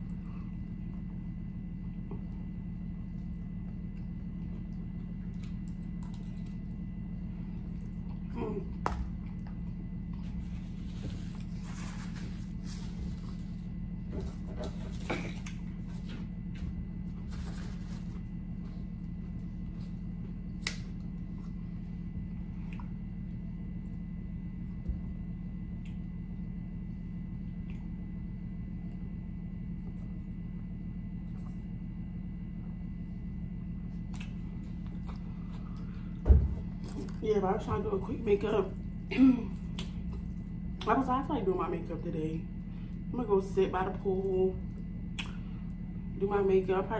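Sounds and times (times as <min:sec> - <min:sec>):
faint chewing: 0:00.0 - 0:13.8, 0:33.9 - 0:36.2
steady low hum: 0:00.0 - 0:46.9.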